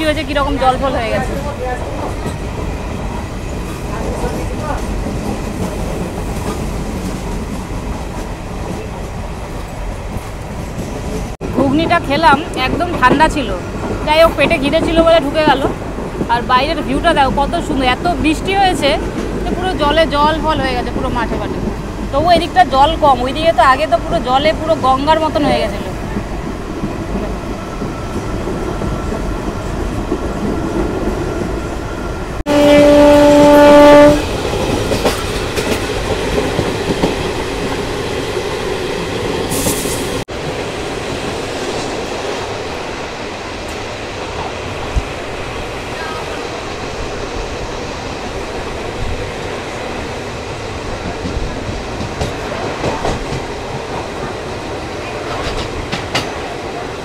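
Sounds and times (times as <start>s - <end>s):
train running on rails: 0.0s - 57.0s
train horn blast: 32.5s - 34.3s.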